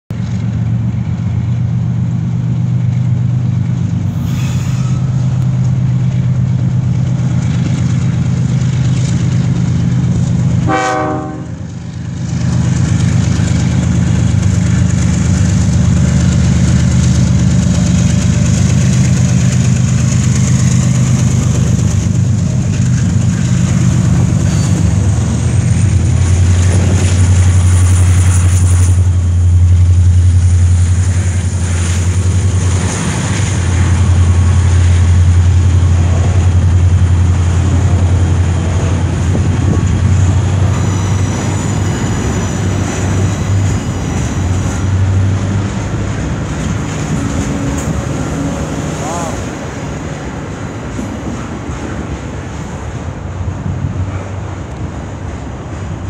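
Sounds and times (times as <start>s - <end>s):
freight train rumbling: 0.1s - 56.0s
locomotive horn toot: 10.6s - 11.6s, 40.6s - 44.6s.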